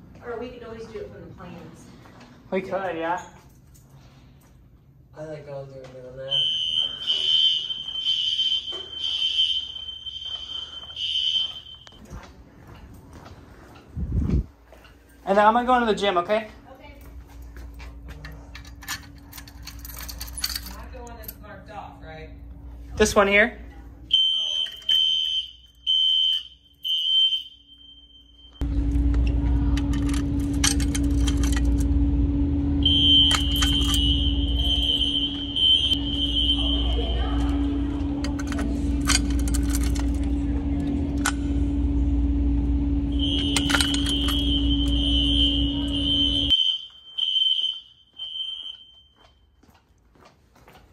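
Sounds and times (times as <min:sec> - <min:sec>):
fire alarm tone: 0:06.2 - 0:12.1, 0:24.1 - 0:28.8, 0:31.4 - 0:49.6
scattered clicks and rattles: 0:17.6 - 0:21.4, 0:28.6 - 0:32.1, 0:32.9 - 0:34.2, 0:37.4 - 0:41.7, 0:43.2 - 0:45.0
loud low hum and rushing: 0:28.6 - 0:46.5.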